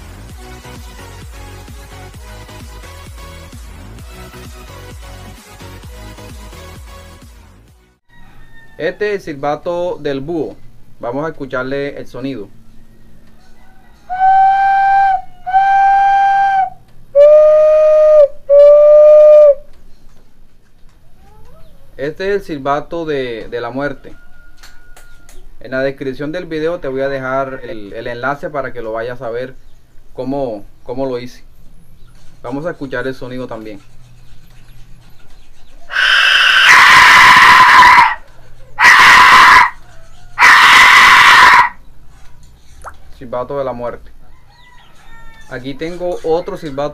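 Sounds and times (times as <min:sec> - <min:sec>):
clay whistle hoots: 0:14.1 - 0:19.7.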